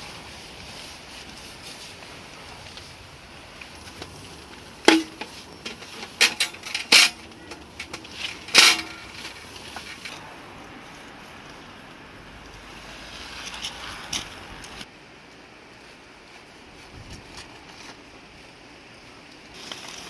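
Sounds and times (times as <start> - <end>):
hard objects knocking: 4.8 - 9.4.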